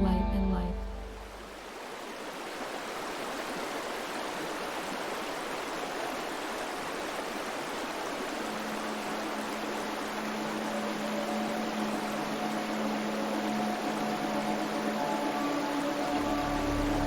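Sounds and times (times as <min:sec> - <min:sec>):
faint low steady tone: 0:00.0 - 0:01.5
stream water rushing: 0:00.8 - 0:17.0.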